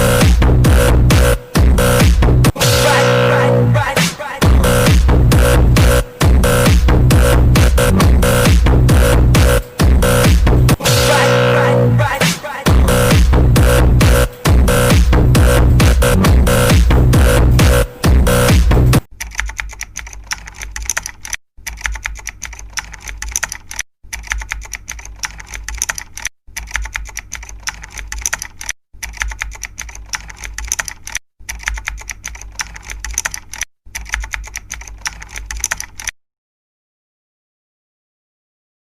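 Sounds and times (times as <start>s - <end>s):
rapid keyboard typing clicks: 19.0s - 36.2s.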